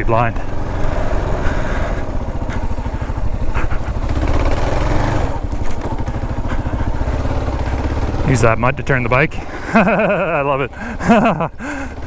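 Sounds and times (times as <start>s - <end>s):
motorcycle engine revving: 0.3s - 12.0s.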